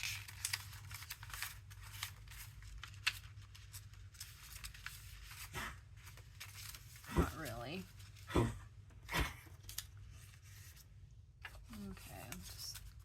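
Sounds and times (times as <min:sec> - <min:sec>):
paper sheets rustling: 0:00.0 - 0:08.3, 0:09.5 - 0:13.0.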